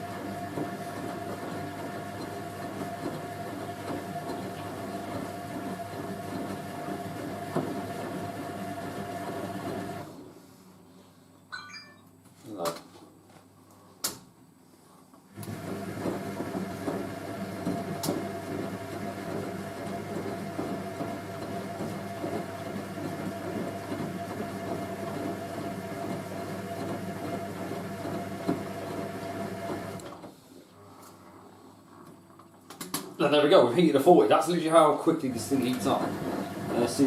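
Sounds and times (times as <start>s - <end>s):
washing machine drum tumbling: 35.3s - 37.0s.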